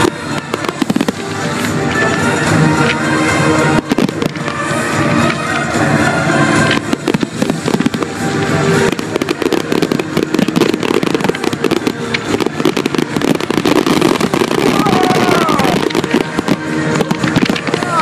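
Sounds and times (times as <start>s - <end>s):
fireworks bangs and crackles: 0.0s - 18.0s
music playing: 0.0s - 18.0s.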